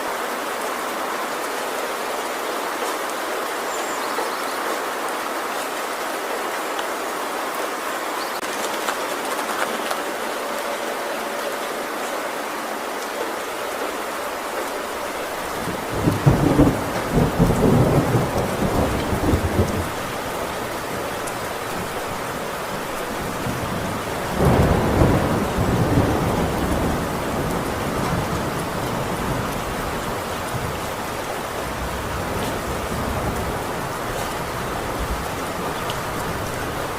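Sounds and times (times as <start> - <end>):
heavy rain on a tin roof: 0.0 - 36.9
thunder rolling: 15.2 - 22.0, 23.2 - 36.9.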